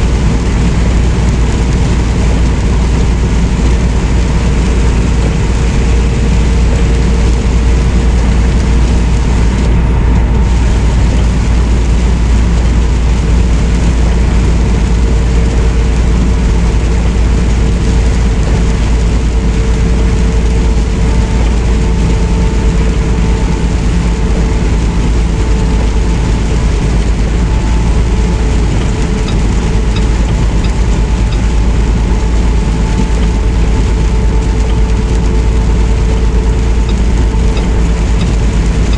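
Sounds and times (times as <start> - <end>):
truck engine and road drone: 0.0 - 38.9.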